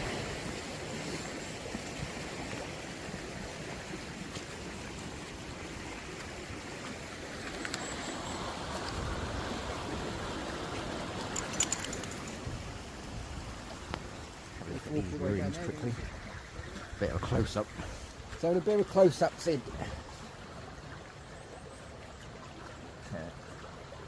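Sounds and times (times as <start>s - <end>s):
stream running: 0.0s - 24.0s.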